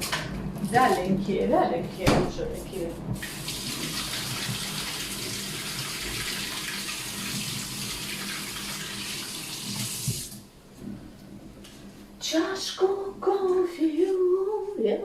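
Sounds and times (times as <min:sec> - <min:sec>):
tap water running into sink: 0:03.2 - 0:10.4.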